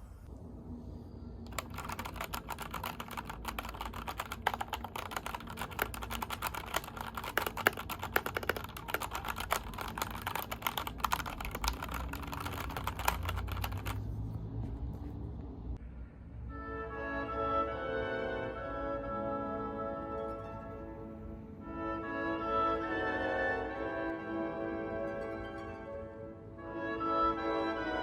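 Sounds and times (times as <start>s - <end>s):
mechanical keyboard typing: 1.5s - 14.1s.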